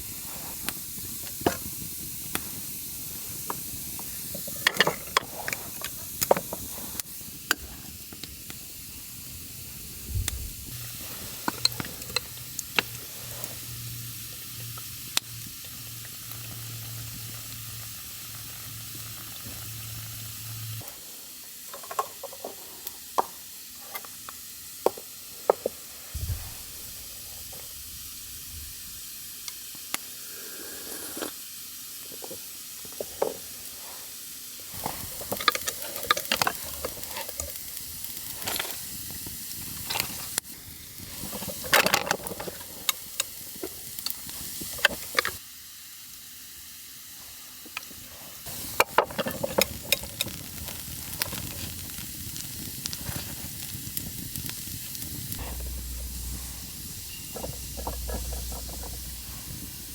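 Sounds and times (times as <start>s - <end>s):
fire crackling and popping: 0.0s - 21.0s, 26.0s - 31.2s, 34.7s - 45.4s, 47.8s - 59.9s
food sizzling over campfire: 0.0s - 59.9s
low thuds: 26.2s - 28.9s, 55.4s - 59.9s.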